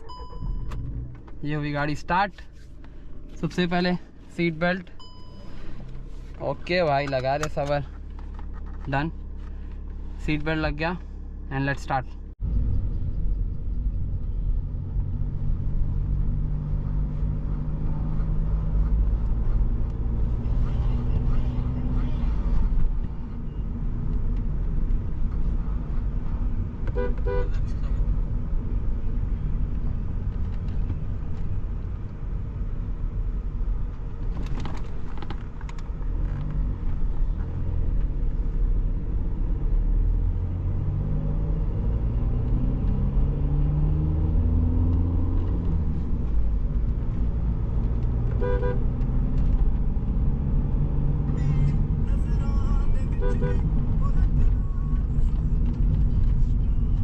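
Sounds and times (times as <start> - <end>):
car diesel engine accelerating: 0.0 - 57.0
car horn toots: 26.9 - 27.6, 48.4 - 48.9, 53.0 - 53.7.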